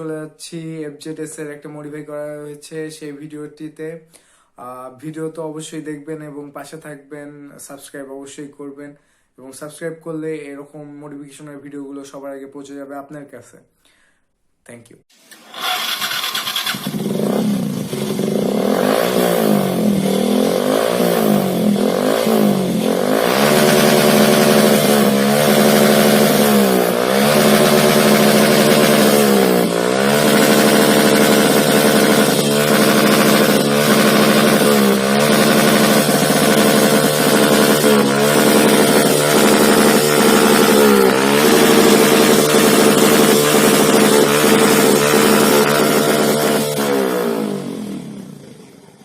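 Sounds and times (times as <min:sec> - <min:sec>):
motorcycle engine revving: 0:15.3 - 0:49.0.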